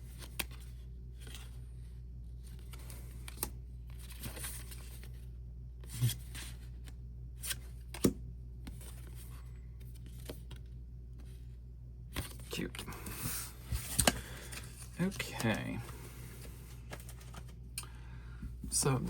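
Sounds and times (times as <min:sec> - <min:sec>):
low steady hum: 0:00.0 - 0:19.0
paper and plastic rustling: 0:12.2 - 0:17.7.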